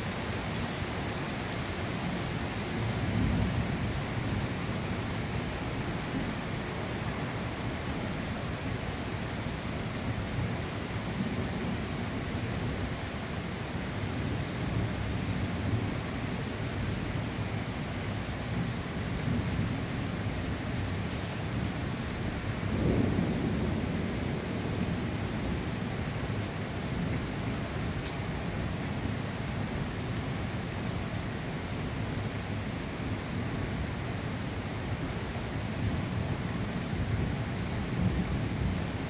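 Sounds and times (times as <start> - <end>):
steady rain: 0.0 - 39.0
low rumbling thunder: 22.3 - 26.0.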